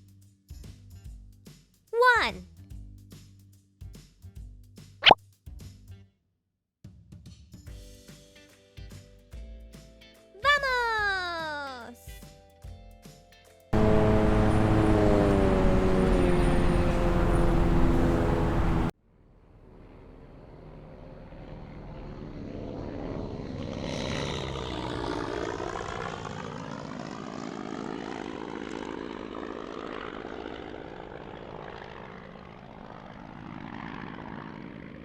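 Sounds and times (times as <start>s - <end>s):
plane flying past: 13.8s - 18.9s, 19.8s - 35.0s
propeller plane engine running: 13.8s - 18.9s, 22.7s - 35.0s.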